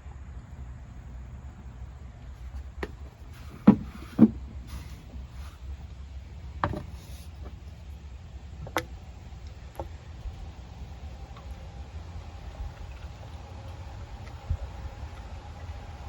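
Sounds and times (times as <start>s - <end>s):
steady low hum: 0.0s - 16.0s
knocks and clunks from handling: 2.6s - 5.3s, 6.6s - 7.6s.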